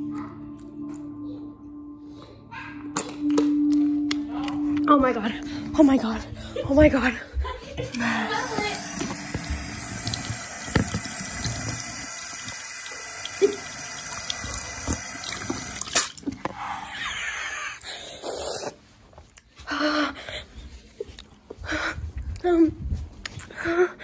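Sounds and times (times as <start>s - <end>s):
water running from a faucet: 8.1s - 16.4s.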